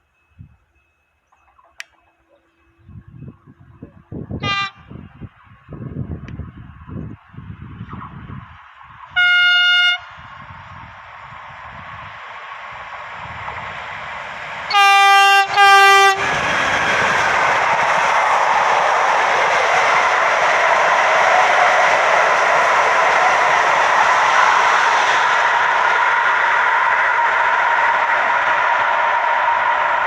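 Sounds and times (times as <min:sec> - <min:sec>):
electric locomotive approaching: 0:00.0 - 0:30.0
train horn blasts: 0:04.4 - 0:05.1, 0:09.2 - 0:10.2, 0:14.7 - 0:16.3.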